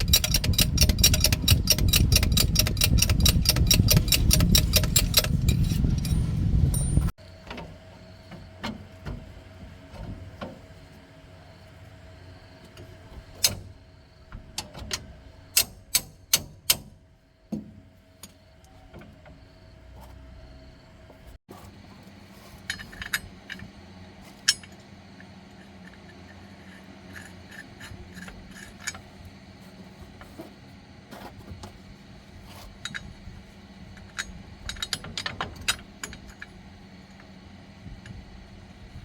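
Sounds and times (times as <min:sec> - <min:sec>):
metallic clicks of tools: 0:00.0 - 0:07.1, 0:34.0 - 0:37.3
steady low hum: 0:00.0 - 0:39.0.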